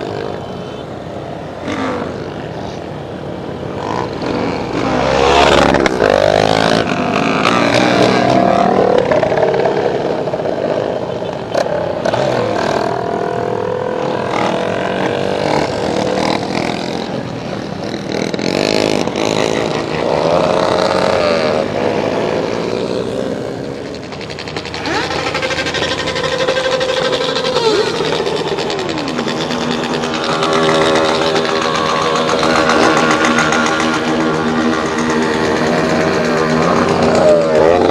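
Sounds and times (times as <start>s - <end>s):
small motorcycle engines revving: 0.0s - 37.9s.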